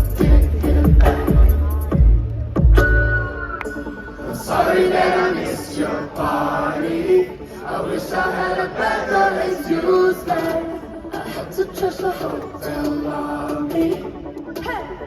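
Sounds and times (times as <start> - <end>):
concert crowd singing: 0.0 - 2.5, 3.3 - 15.0.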